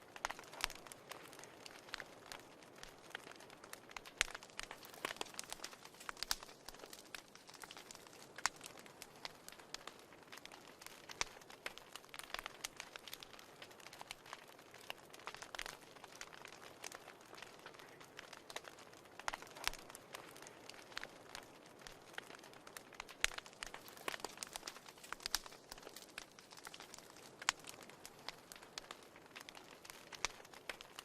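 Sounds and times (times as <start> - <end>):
faint steady hiss: 0.0 - 31.0
wood fire crackling: 0.0 - 31.0.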